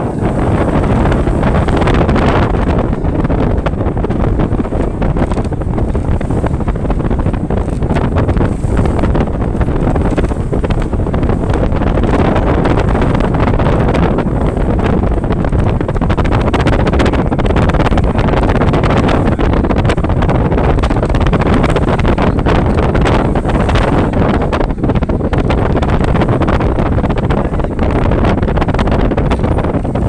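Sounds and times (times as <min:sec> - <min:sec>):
boat rushing through water: 0:00.0 - 0:30.0
wind buffeting microphone: 0:00.0 - 0:30.0.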